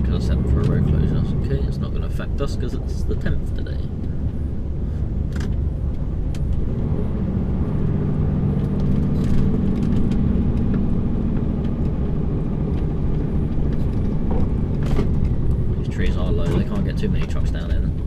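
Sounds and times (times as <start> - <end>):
lorry diesel engine hum: 0.0 - 18.0
light clicks and rattles: 8.6 - 18.0.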